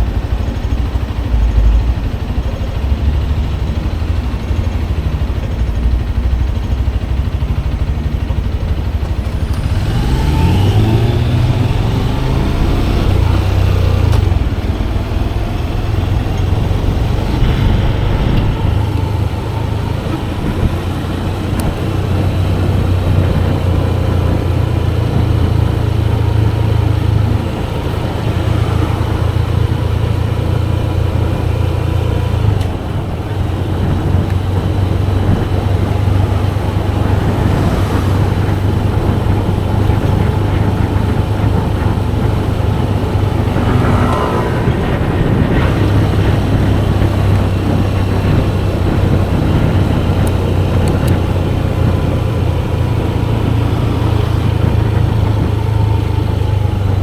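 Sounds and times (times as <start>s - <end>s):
rising and falling whine: 0.0s - 4.7s, 9.2s - 32.0s, 34.1s - 47.9s
motorcycle engine drone: 0.0s - 57.0s
road and wind noise: 0.0s - 57.0s.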